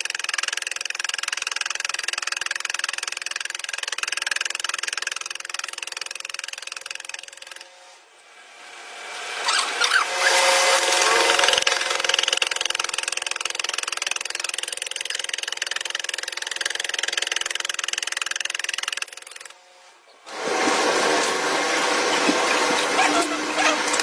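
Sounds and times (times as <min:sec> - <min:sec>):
handheld power tool running: 0:08.7 - 0:19.7, 0:20.3 - 0:24.0.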